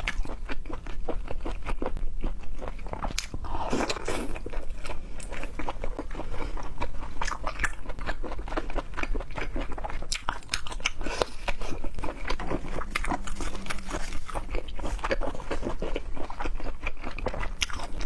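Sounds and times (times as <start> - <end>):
chewing and crunching: 0.0 - 18.0.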